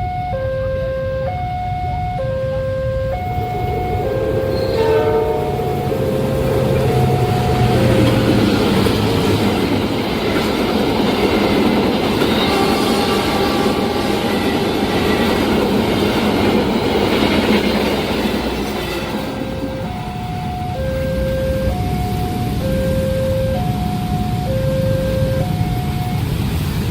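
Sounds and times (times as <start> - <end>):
level crossing alarm two-tone: 0.0 - 8.8, 19.5 - 26.6
train wheel and rail rush: 1.3 - 26.9
locomotive engine humming: 1.6 - 26.9.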